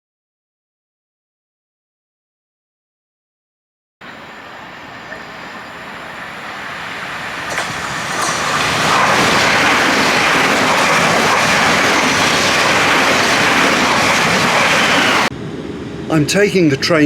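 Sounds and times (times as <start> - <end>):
train running close by: 4.0 - 17.0.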